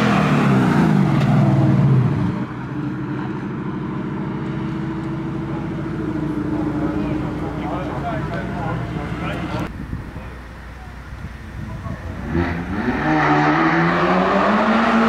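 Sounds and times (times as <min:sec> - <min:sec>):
engines of other cars: 0:00.0 - 0:15.0
car driving past: 0:12.2 - 0:15.0.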